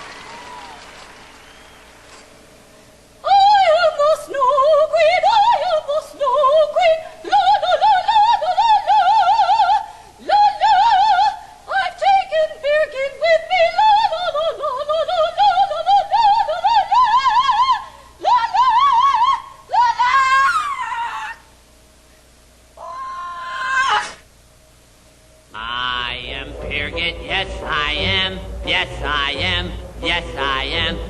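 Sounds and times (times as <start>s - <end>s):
person singing operatically: 25.5s - 31.0s.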